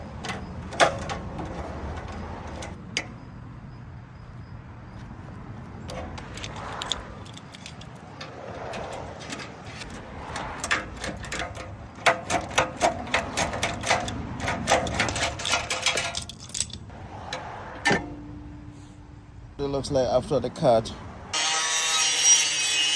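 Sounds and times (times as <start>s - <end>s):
metallic clicks of tools on exhaust: 0.0s - 3.3s, 5.7s - 18.4s.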